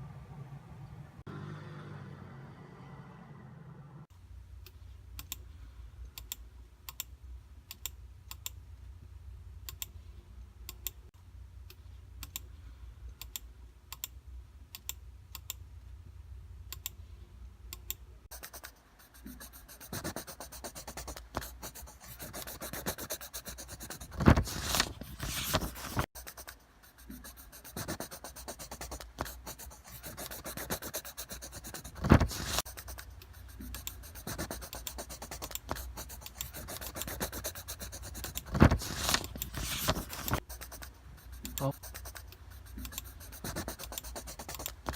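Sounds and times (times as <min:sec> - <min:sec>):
low hum: 0:00.0 - 0:04.4
scratchy rubbing noise: 0:18.3 - 0:44.9.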